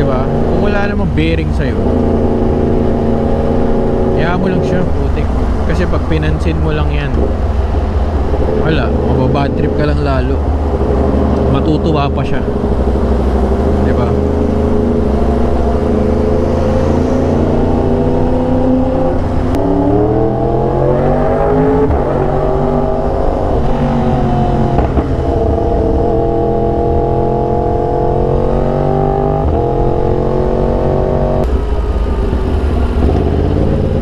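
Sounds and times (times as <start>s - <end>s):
motorcycle engine accelerating: 6.9s - 34.0s.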